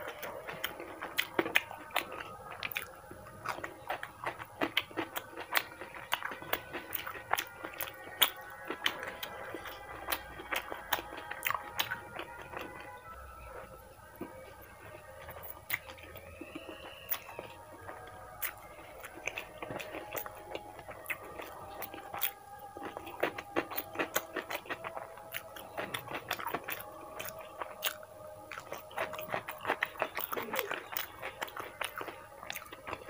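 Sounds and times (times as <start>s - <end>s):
wet chewing with mouth clicks: 0.0s - 33.0s.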